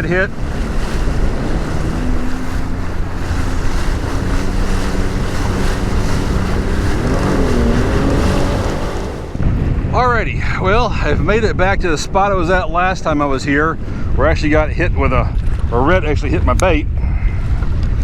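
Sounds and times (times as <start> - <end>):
rushing water: 0.0 - 9.5
watercraft engine humming: 0.0 - 9.6
wind noise on microphone: 0.0 - 18.0.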